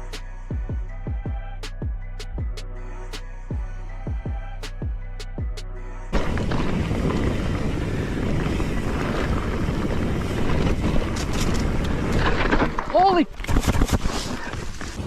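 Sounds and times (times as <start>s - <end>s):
music: 0.0s - 6.2s
wind buffeting microphone: 6.2s - 15.0s.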